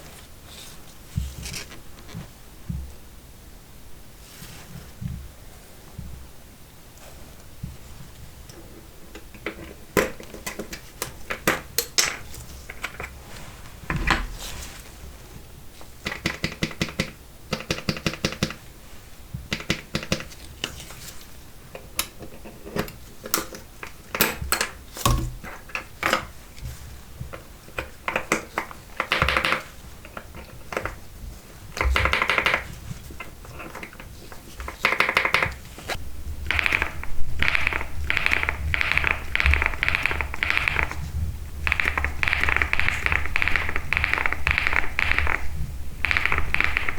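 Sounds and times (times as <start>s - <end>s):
mechanical keyboard typing: 36.4s - 46.9s.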